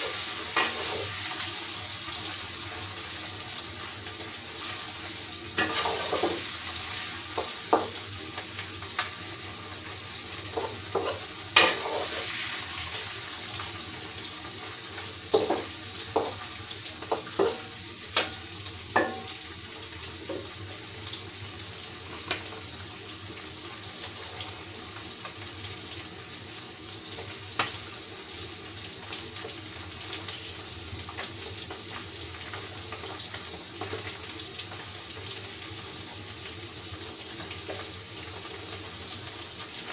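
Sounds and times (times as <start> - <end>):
metal utensils clinking on pan: 0.0 - 1.2, 5.6 - 6.4, 10.5 - 12.3, 15.3 - 16.4, 17.0 - 19.4
food frying in oil: 0.0 - 39.9.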